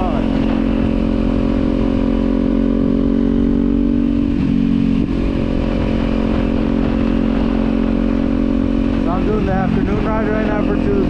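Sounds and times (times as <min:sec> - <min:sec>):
motorcycle engine and exhaust running: 0:00.0 - 0:11.0.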